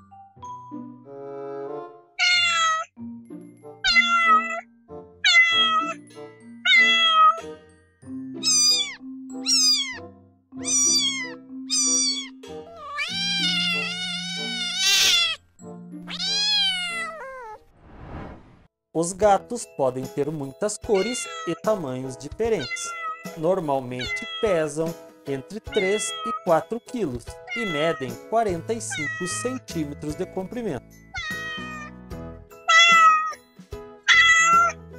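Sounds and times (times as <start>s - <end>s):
background music: 0.0s - 17.1s, 19.0s - 34.9s
kitten meowing: 2.2s - 2.9s, 3.8s - 4.6s, 5.2s - 6.0s, 6.7s - 7.4s, 8.4s - 15.4s, 16.0s - 17.6s, 21.0s - 21.6s, 22.6s - 23.3s, 24.0s - 24.5s, 25.7s - 26.4s, 27.5s - 28.1s, 28.9s - 29.5s, 31.2s - 31.9s, 32.7s - 33.4s, 34.1s - 34.8s.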